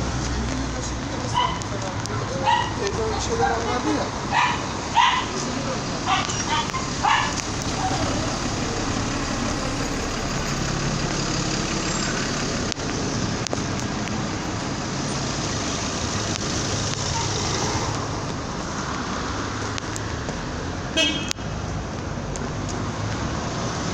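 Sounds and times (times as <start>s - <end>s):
car road and engine noise: 0.0s - 23.9s.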